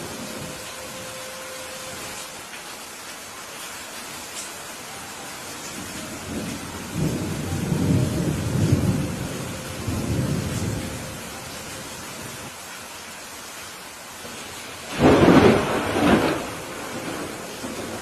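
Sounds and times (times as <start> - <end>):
steady rain: 0.0 - 18.0
thunder: 6.3 - 11.1, 14.9 - 18.0.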